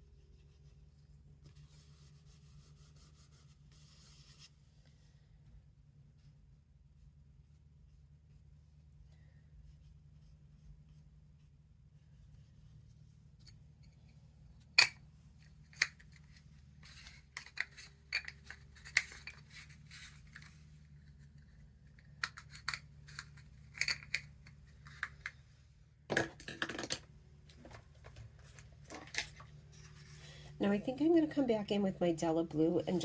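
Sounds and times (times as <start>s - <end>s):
faint steady hum: 0.0s - 33.0s
clatter of craft supplies: 13.4s - 25.5s, 26.1s - 31.6s
scratchy rustles: 16.1s - 23.8s.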